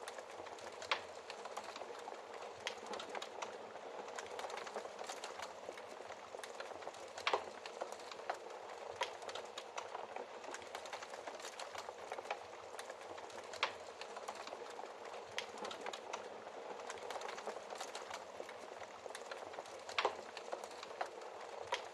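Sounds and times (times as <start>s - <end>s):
fire crackling: 0.0s - 21.9s.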